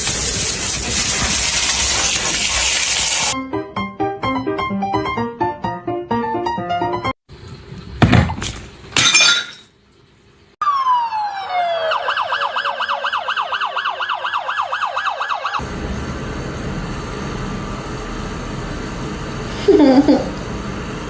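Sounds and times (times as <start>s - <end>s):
falling whistle and siren-like wail: 10.6s - 15.8s.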